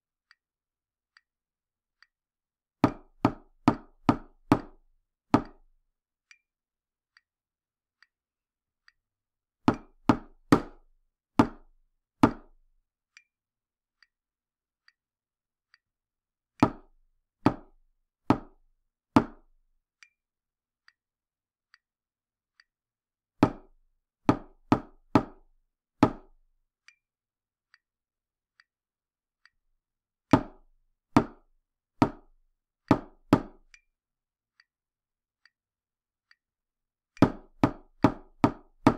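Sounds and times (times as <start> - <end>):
faint ticks: 26.8 - 27.0.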